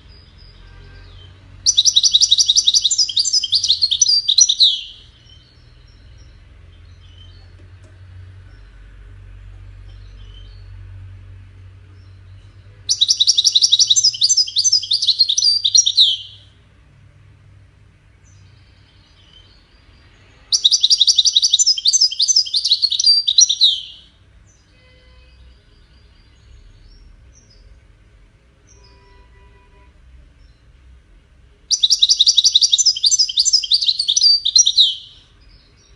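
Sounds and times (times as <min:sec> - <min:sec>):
goldfinch singing: 0:00.1 - 0:07.6, 0:12.0 - 0:16.4, 0:18.2 - 0:24.7, 0:31.7 - 0:35.9.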